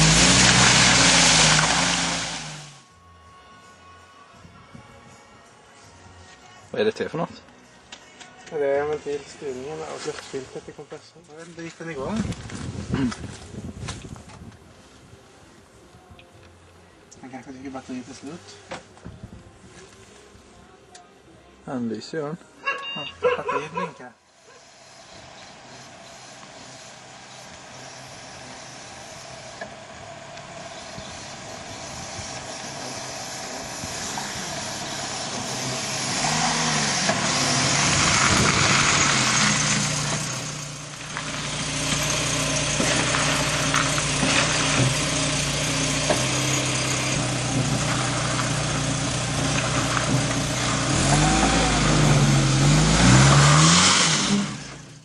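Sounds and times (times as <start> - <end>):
car engine running: 24.8 - 55.0.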